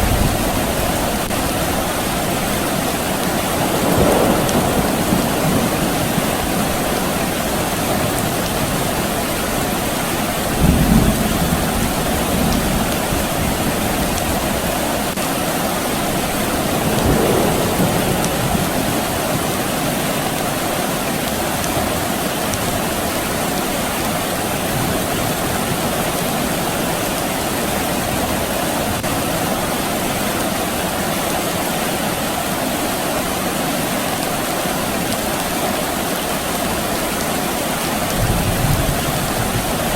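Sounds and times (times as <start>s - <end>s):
distant thunder rumble: 0.0s - 9.2s, 10.4s - 14.7s, 16.0s - 20.8s, 38.1s - 39.9s
steady rain falling: 0.0s - 39.9s.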